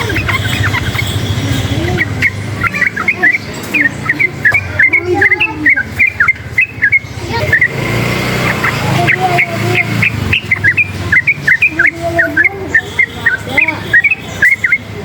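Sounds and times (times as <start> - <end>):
bird singing chirpy notes: 0.0 - 15.0.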